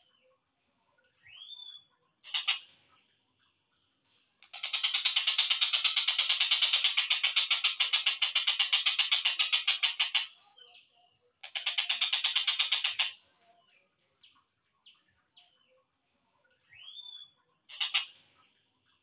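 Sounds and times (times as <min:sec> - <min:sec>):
kingfisher rattling call: 0:02.2 - 0:02.7, 0:04.4 - 0:10.4, 0:11.4 - 0:13.2, 0:17.7 - 0:18.1.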